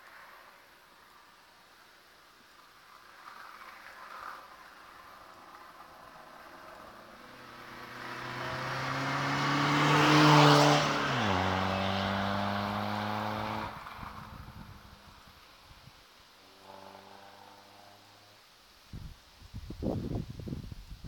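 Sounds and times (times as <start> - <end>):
diesel car driving past: 4.6 - 15.4, 16.5 - 18.3.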